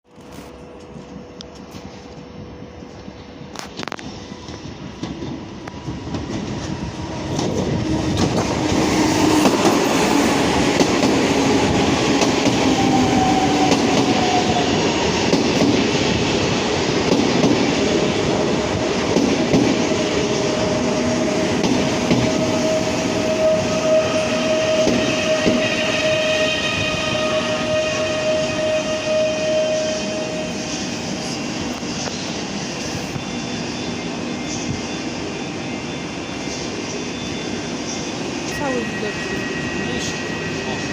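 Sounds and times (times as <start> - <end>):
train running on track: 0.0 - 40.9
steady whining tones: 17.7 - 40.9.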